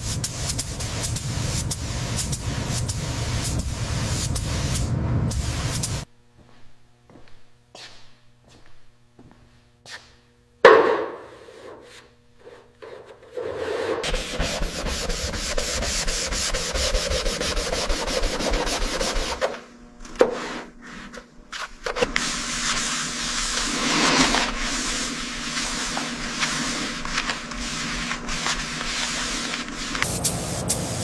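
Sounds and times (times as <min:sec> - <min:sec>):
sanding rasping strokes: 0:13.4 - 0:19.4.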